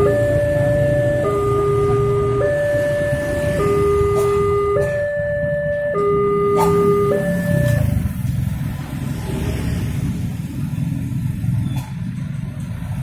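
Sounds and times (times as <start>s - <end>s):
level-crossing two-tone alarm: 0.0s - 8.1s
road vehicles rumbling: 0.0s - 13.0s.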